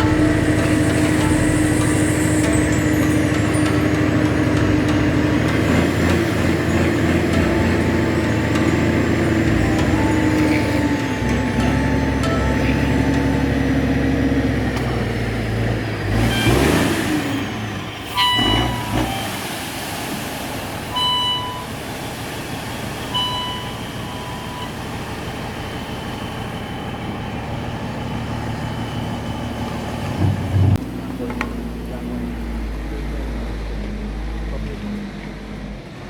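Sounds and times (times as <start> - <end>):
truck engine running: 0.0 - 36.0
short high horn toots: 18.0 - 19.5, 20.9 - 21.7.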